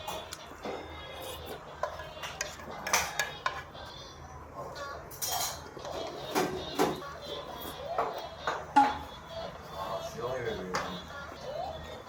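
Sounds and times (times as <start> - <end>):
cutlery clinking against dishes: 1.8 - 3.6, 5.1 - 7.0.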